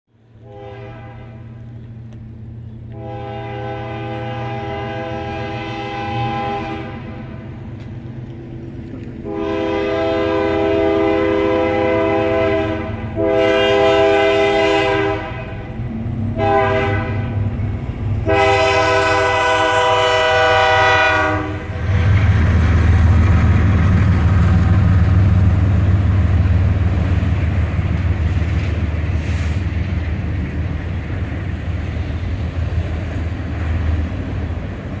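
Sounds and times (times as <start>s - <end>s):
train rushing past: 0.2s - 35.0s
train air horn blasts: 0.4s - 1.7s, 2.9s - 7.5s, 9.2s - 17.6s, 18.2s - 22.4s
low diesel rumble: 1.3s - 35.0s.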